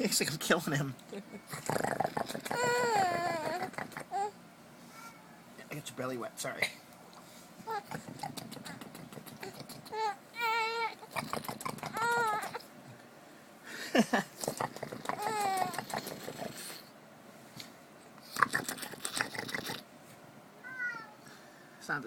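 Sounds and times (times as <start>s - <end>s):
baby squealing and babbling: 2.5s - 4.3s, 9.9s - 11.1s, 11.9s - 12.6s, 15.2s - 15.8s, 20.6s - 21.2s.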